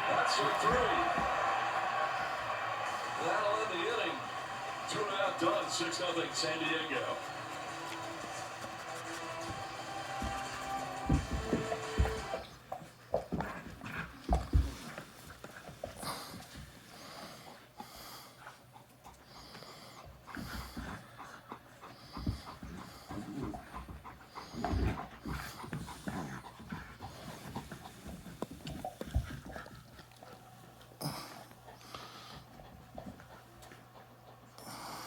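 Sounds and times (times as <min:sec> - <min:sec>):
puppy panting: 0:05.0 - 0:35.0.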